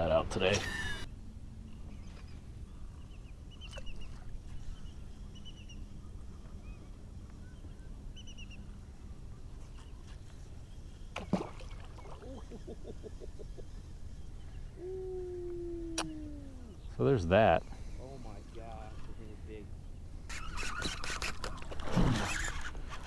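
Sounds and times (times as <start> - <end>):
low wind rumble: 14.0 - 20.3.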